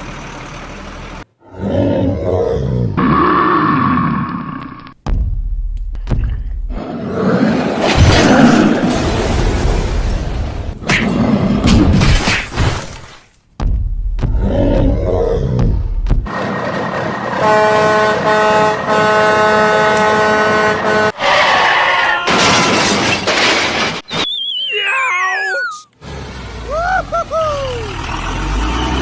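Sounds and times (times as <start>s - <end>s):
cartoon horn blare: 17.4s - 21.4s
wobbling descending whistle: 24.1s - 25.9s.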